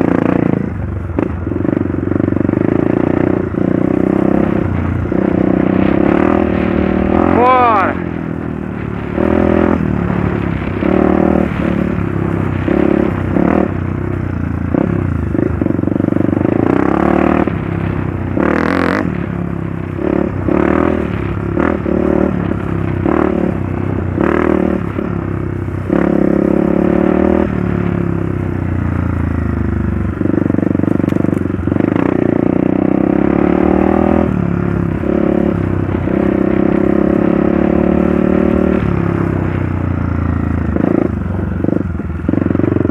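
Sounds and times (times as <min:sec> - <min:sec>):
knocks and clatter on rough trail: 0:00.0 - 0:07.3, 0:08.0 - 0:32.7
motorcycle engine revving: 0:00.0 - 0:42.9.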